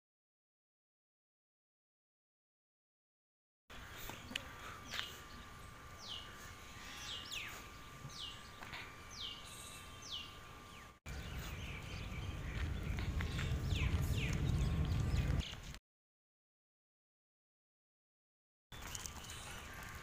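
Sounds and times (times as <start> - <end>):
faint steady whine: 3.7 - 15.4
bird chirping: 3.8 - 15.7
low rumble: 11.2 - 15.5.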